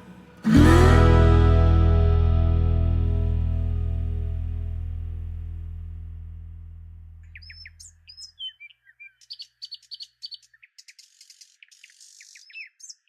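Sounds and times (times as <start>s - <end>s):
music with low sustained tones: 0.0s - 7.3s
birds chirping: 7.2s - 13.0s.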